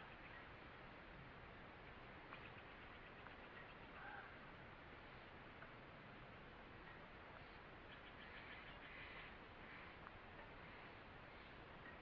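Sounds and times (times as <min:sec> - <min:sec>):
faint forest ambience: 0:00.0 - 0:12.0
distant bird ticking call: 0:01.8 - 0:04.4, 0:06.8 - 0:12.0.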